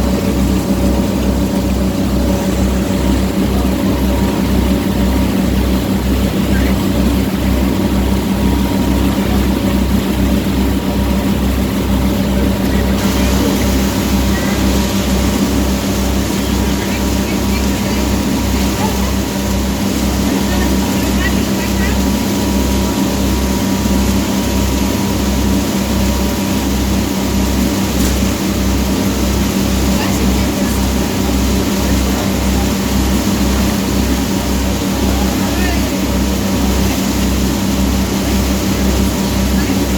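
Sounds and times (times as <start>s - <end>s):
boat engine throbbing: 0.0s - 39.9s
steady hiss: 13.0s - 18.1s.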